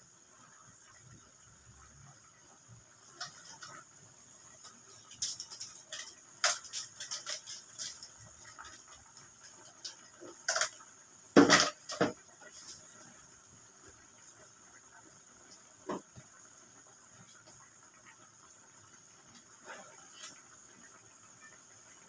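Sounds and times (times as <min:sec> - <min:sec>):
pot cooking hiss: 0:00.0 - 0:22.0
utensil clinking against pot: 0:05.1 - 0:10.8.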